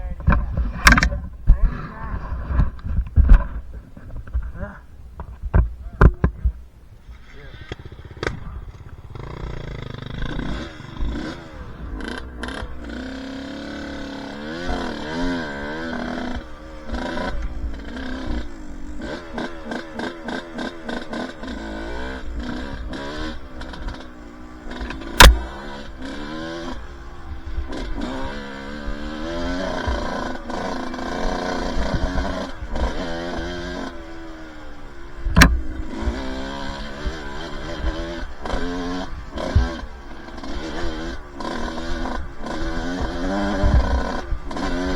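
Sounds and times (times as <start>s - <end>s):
dirt bike engine revving: 5.9s - 44.9s
sharp knocks: 24.8s - 25.8s.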